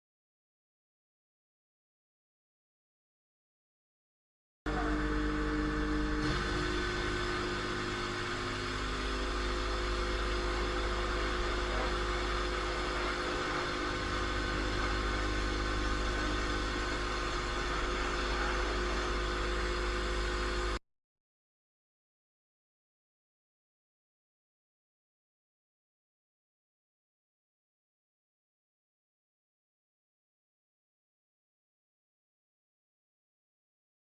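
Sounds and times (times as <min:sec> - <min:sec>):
car engine: 0:05.6 - 0:20.8.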